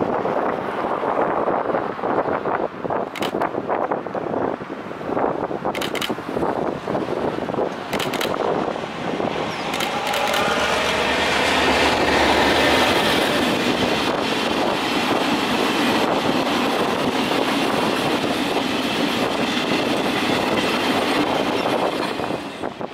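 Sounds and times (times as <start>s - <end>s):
freight train rumbling past: 0.0s - 22.9s
wheels clacking on rails: 5.7s - 22.9s.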